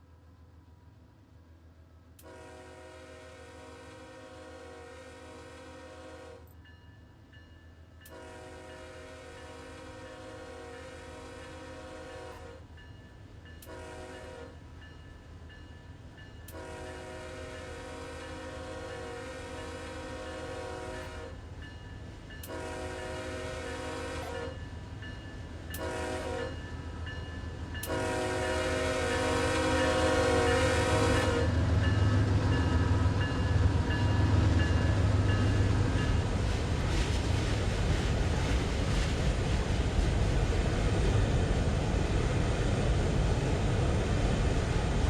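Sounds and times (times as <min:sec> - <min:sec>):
train rumble: 0:00.0 - 0:45.0
locomotive air horn blasts: 0:02.2 - 0:06.4, 0:08.1 - 0:12.6, 0:13.6 - 0:14.6, 0:16.5 - 0:21.4, 0:22.4 - 0:24.6, 0:25.7 - 0:26.6, 0:27.8 - 0:31.6.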